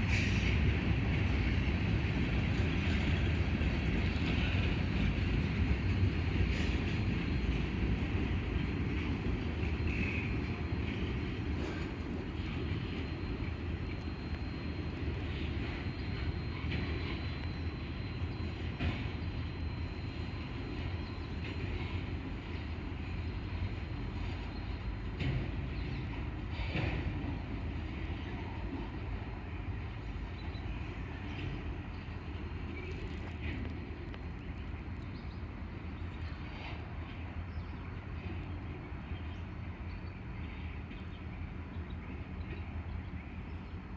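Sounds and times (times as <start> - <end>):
rail clicks: 0.0 - 19.3, 24.2 - 29.2, 30.0 - 37.0
train wheels rumbling on rails: 0.0 - 43.9.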